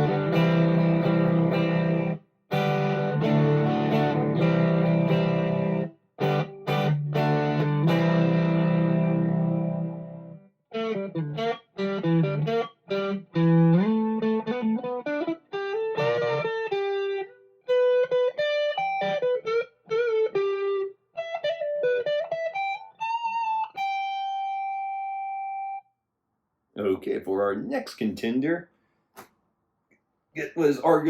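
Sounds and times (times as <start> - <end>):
electric guitar lick: 0.0 - 25.8.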